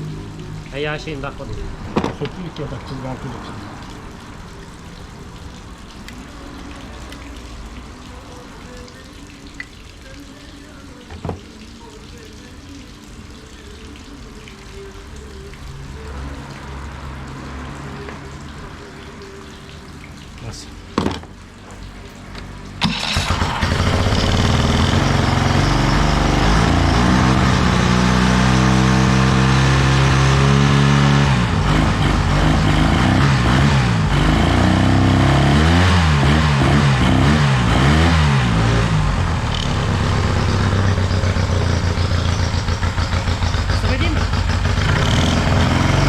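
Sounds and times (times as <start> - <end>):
outboard motor revving and idling: 22.8 - 46.0.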